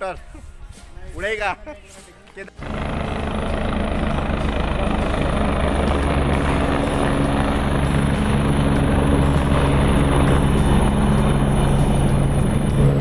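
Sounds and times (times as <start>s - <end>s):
helicopter rotor and engine: 2.6s - 13.0s.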